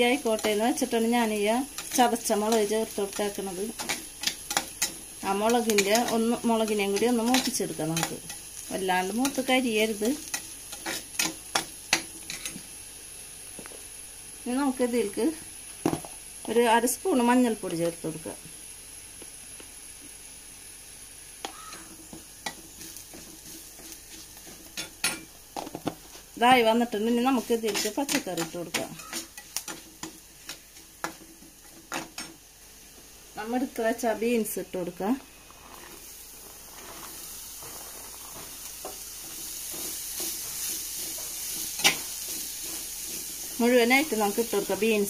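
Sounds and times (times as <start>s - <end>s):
shallots sizzling in oil: 0.0s - 45.0s
spatula stirring: 0.1s - 12.6s, 21.4s - 32.4s, 35.5s - 45.0s
metal spoon scraping clay pot: 27.5s - 29.9s.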